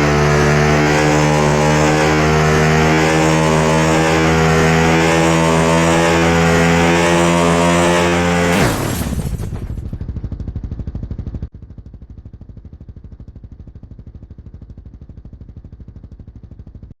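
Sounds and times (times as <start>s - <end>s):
motorcycle engine idling: 9.5s - 16.9s.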